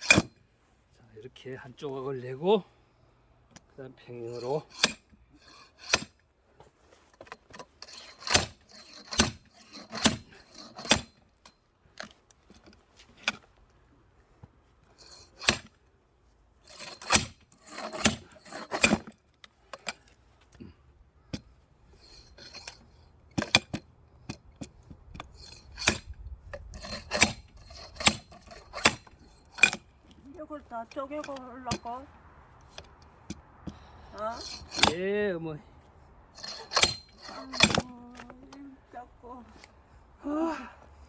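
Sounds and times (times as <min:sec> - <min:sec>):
axe splitting logs: 0:00.0 - 0:00.3, 0:07.8 - 0:11.1, 0:15.1 - 0:15.8, 0:16.7 - 0:19.1, 0:22.2 - 0:24.8, 0:25.4 - 0:30.2, 0:32.8 - 0:35.0, 0:36.4 - 0:38.3
metallic clink: 0:36.4 - 0:38.3.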